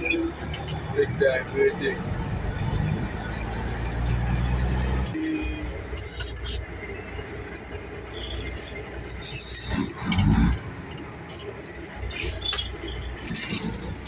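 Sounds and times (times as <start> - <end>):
heavy truck engine running: 0.0 - 14.0
short high-pitched squeals: 8.1 - 10.0.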